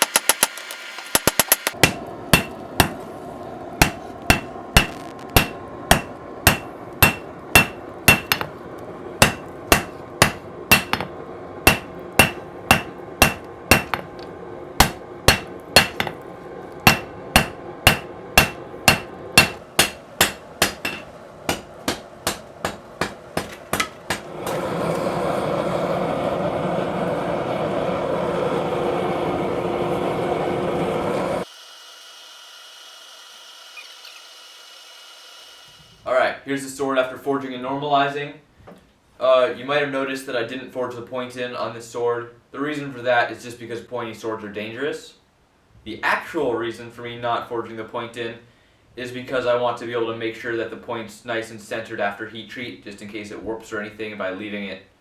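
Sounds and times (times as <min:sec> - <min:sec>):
hammer striking steel on anvil: 0:00.0 - 0:03.0, 0:03.8 - 0:08.5, 0:09.2 - 0:11.1, 0:11.7 - 0:14.2, 0:14.8 - 0:16.2, 0:16.8 - 0:24.6
steady rushing noise: 0:00.0 - 0:31.4.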